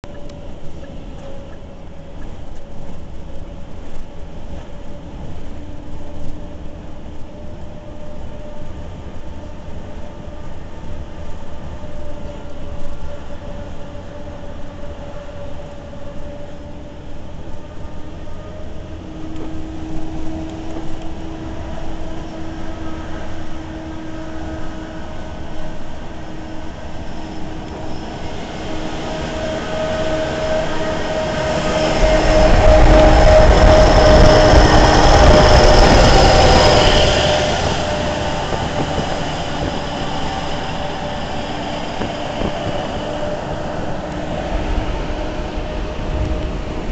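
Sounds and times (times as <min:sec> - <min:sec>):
truck engine rumbling: 0:26.9 - 0:46.9.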